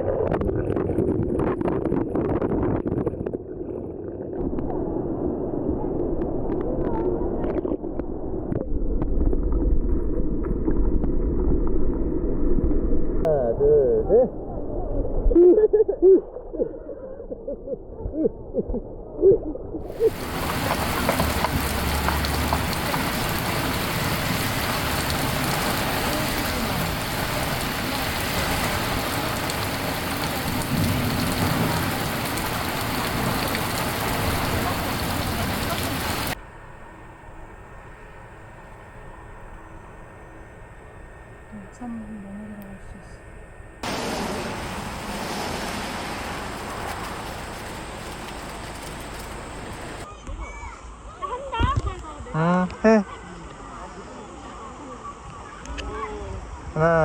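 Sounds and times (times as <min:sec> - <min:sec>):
stream rushing: 0:19.9 - 0:36.4, 0:43.8 - 0:50.0.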